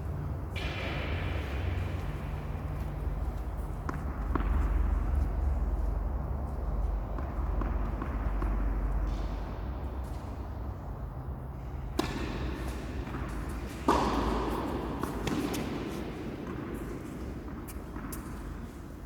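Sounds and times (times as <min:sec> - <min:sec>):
steady low rumble: 0:00.0 - 0:13.7
tennis ball struck by rackets: 0:00.6 - 0:02.0, 0:03.8 - 0:05.0, 0:11.8 - 0:18.5.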